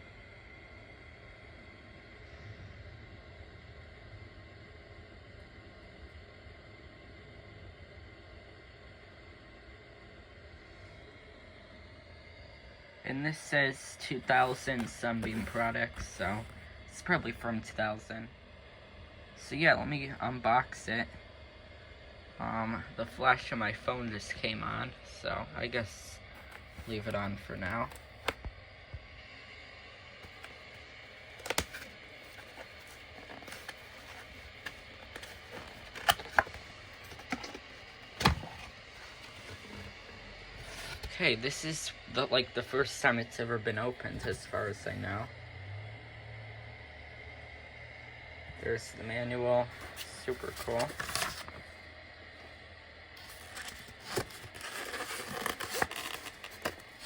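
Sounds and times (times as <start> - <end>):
cardboard box handling rustles: 14.2 - 16.6, 26.3 - 28.4, 30.2 - 41.2, 49.7 - 51.7, 53.2 - 57.0.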